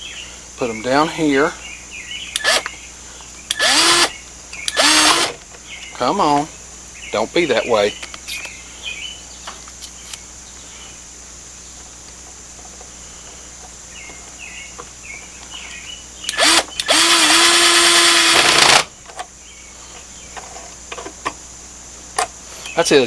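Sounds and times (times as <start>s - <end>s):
cordless drill driving screw: 2.4s - 2.7s, 3.5s - 5.4s, 16.3s - 18.9s.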